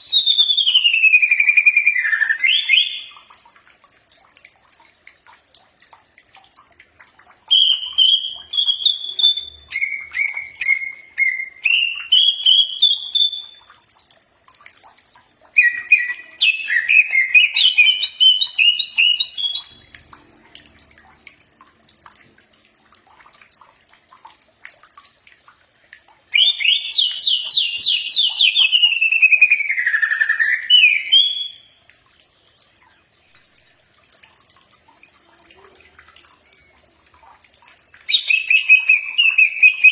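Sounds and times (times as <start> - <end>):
bird singing whistled notes: 0.0 - 3.1, 7.5 - 13.6, 15.6 - 20.0, 26.4 - 31.8, 38.1 - 39.9.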